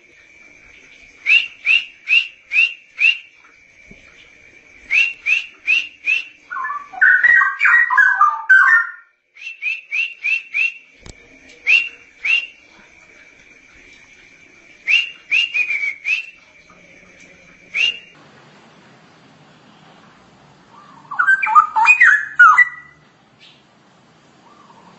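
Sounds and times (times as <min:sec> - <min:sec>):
long high bird whistle: 0:01.2 - 0:03.4, 0:04.8 - 0:12.6, 0:14.8 - 0:16.4, 0:17.6 - 0:18.2, 0:21.1 - 0:23.0
bird warbling song: 0:04.1 - 0:09.0, 0:20.7 - 0:23.7, 0:24.4 - 0:24.9
sharp upswept bird notes: 0:04.9 - 0:09.1, 0:20.7 - 0:23.6.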